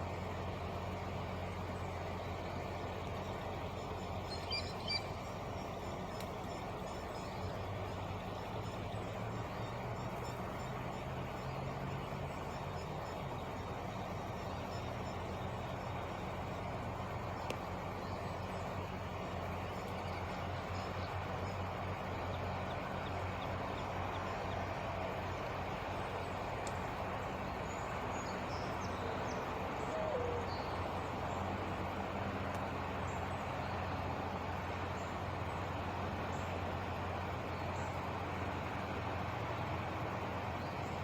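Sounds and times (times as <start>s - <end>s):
low mechanical hum: 0.0s - 41.0s
faint bird chirps: 3.1s - 24.6s.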